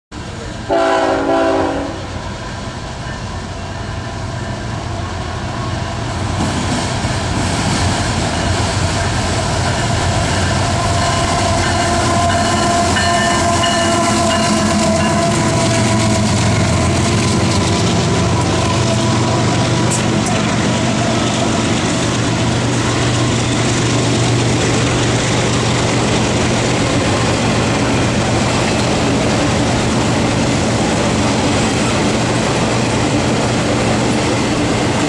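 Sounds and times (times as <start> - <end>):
diesel train engines and rolling noise: 0.1 - 35.0
locomotive horn blast: 0.7 - 2.2, 10.7 - 20.5.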